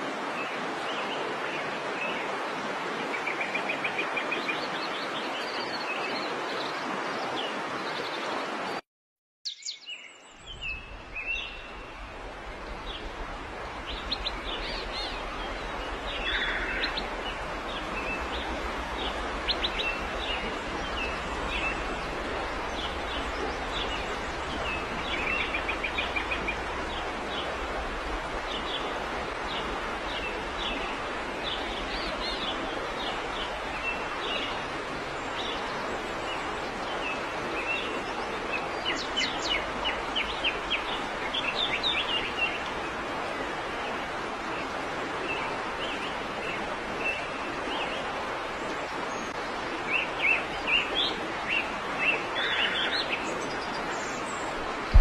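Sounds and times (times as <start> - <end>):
steady hiss: 10.4 - 37.3.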